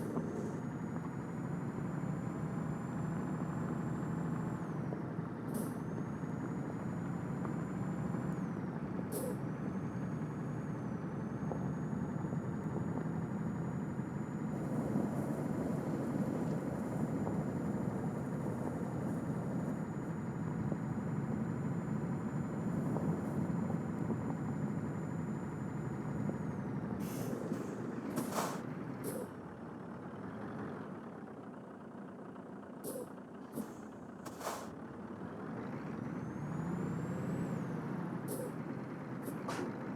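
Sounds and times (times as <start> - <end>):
diesel truck engine running: 0.0 - 39.9
air brake hisses: 27.0 - 29.3, 32.8 - 34.7, 38.3 - 38.6.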